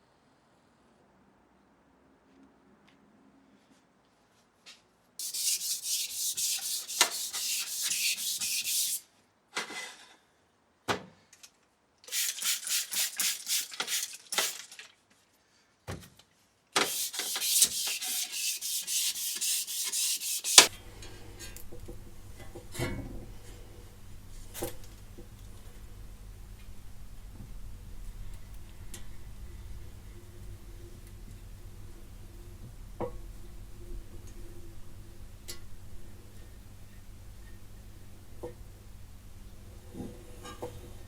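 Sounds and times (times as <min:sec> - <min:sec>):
hand sanding metal: 0:05.2 - 0:09.0, 0:12.1 - 0:14.6, 0:16.8 - 0:20.7.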